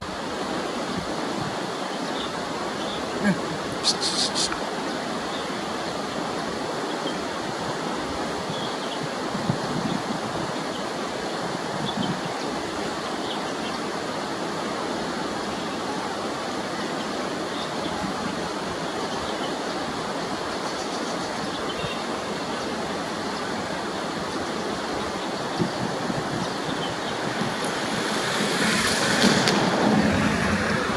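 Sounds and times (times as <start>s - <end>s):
steady rushing noise: 25.0s - 30.9s.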